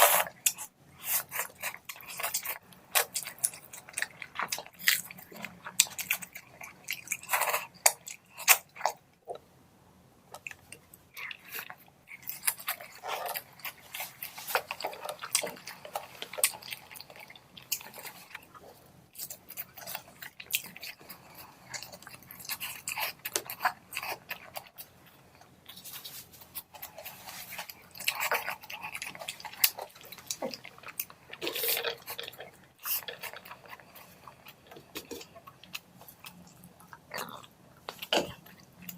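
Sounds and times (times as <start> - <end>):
person chewing and smacking: 0.0 - 9.4, 10.3 - 38.9.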